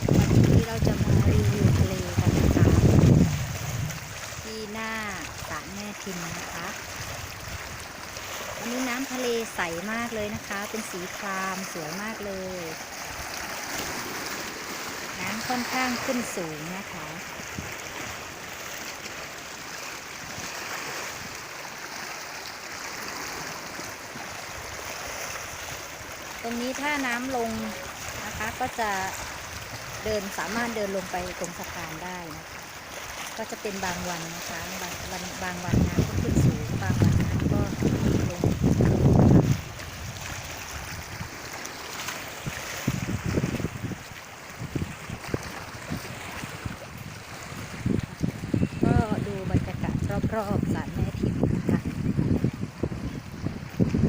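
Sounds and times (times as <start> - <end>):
wind gusting on microphone: 0.0 - 5.5, 12.0 - 18.4, 34.0 - 41.5, 42.3 - 54.0
sea waves washing on shore: 0.0 - 54.0.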